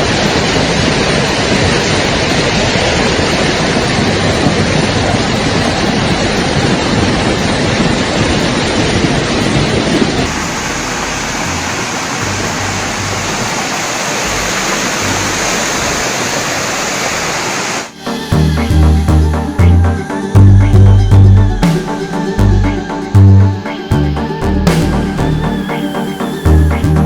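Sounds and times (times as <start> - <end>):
floodwater rushing: 0.0 - 27.0
electronic music: 17.9 - 27.0
low rumbles: 18.1 - 27.0.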